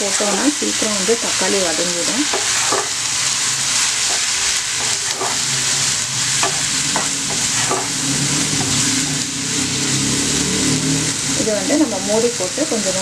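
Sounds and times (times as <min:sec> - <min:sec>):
vegetables sizzling in oil: 0:00.0 - 0:13.0
wooden spatula scraping pan: 0:02.2 - 0:03.1, 0:03.7 - 0:05.6, 0:06.4 - 0:08.9.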